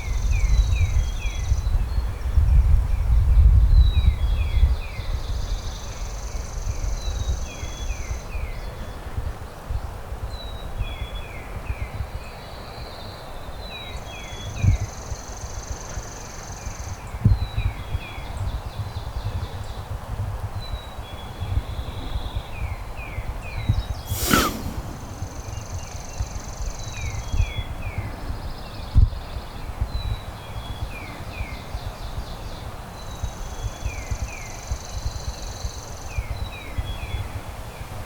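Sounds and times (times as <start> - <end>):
wind buffeting microphone: 24.1 - 25.9.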